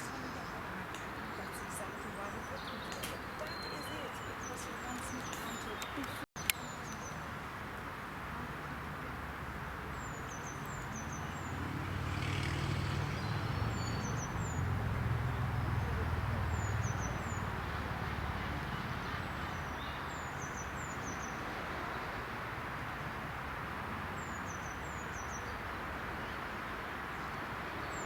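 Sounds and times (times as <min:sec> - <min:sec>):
traffic rumble: 0:00.0 - 0:28.0
vehicle passing: 0:08.2 - 0:20.5.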